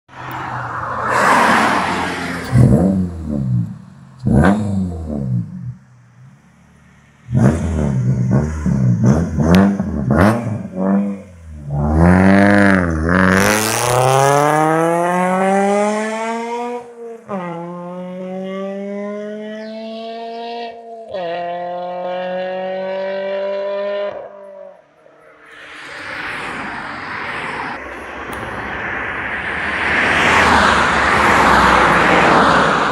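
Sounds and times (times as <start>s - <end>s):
car engine revving: 0.3s - 24.5s.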